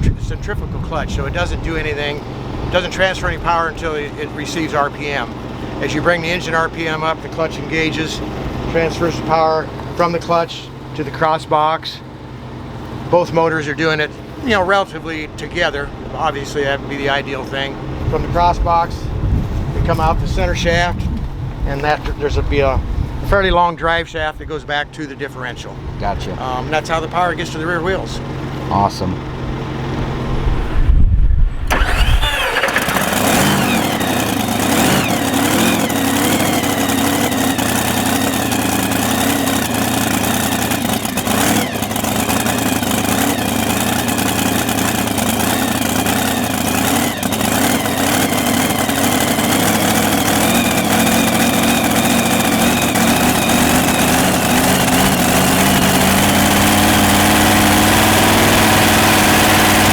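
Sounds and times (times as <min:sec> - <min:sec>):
tractor engine idling fast: 0:00.0 - 0:23.3, 0:25.7 - 0:30.4, 0:31.7 - 0:59.9
tractor engine cranking: 0:01.1 - 0:11.4, 0:31.7 - 0:59.9.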